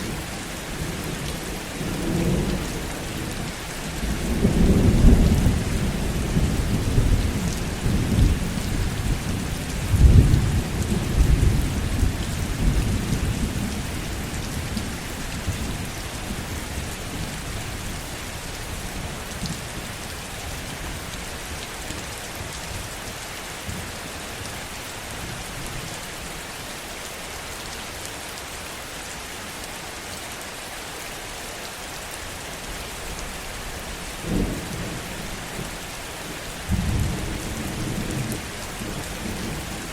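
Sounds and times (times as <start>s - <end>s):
heavy rain: 0.0s - 39.9s
rolling thunder: 4.0s - 14.8s, 36.7s - 39.9s.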